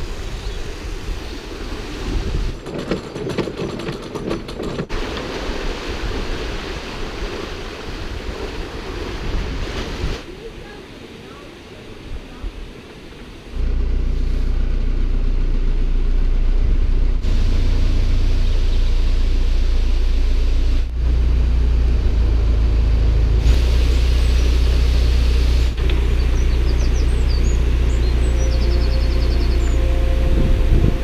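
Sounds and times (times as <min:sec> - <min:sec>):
diesel engine low rumble: 0:13.5 - 0:31.0.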